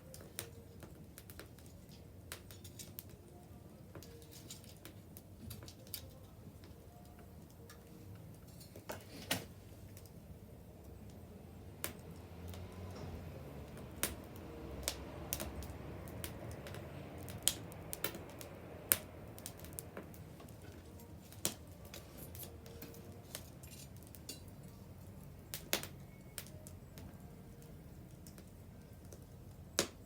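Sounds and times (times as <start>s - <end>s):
bonfire pops and snaps: 0.0s - 3.2s, 3.9s - 10.2s, 10.8s - 30.0s
low rumble of burning fire: 0.0s - 30.0s.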